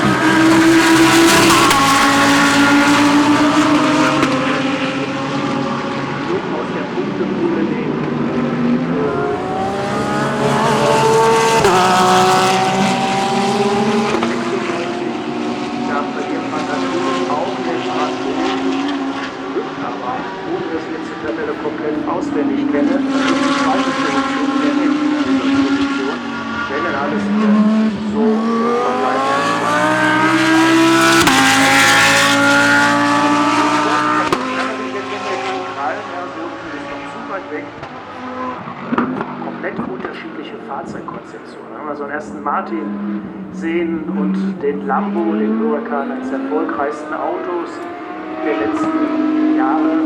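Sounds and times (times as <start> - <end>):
race car engine accelerating: 0.0 - 50.0
gear upshift: 42.1 - 50.0.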